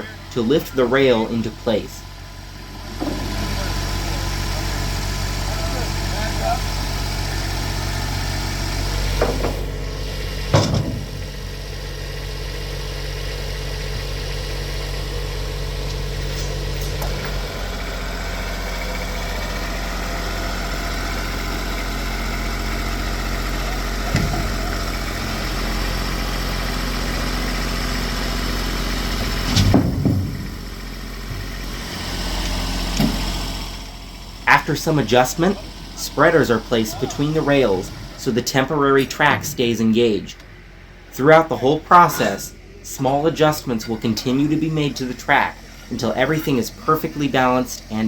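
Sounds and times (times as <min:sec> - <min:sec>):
tractor engine idling: 0:00.0 - 0:48.0
sharp knocks of rails: 0:09.1 - 0:09.7, 0:29.2 - 0:30.6.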